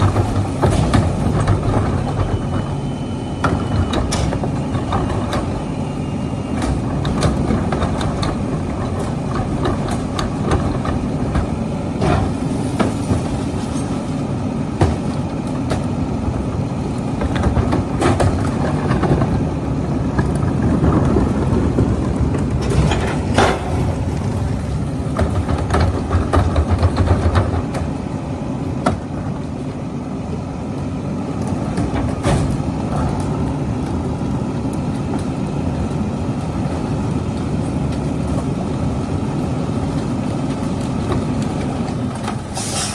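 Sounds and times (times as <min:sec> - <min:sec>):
diesel engine running: 0:00.0 - 0:42.9
metal clanks and knocks: 0:22.6 - 0:24.5.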